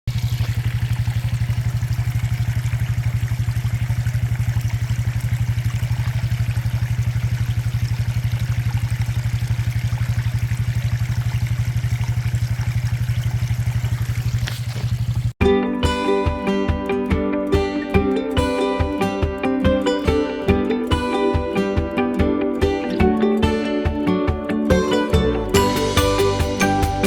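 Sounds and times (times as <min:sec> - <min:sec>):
engine idling: 0:00.1 - 0:15.4.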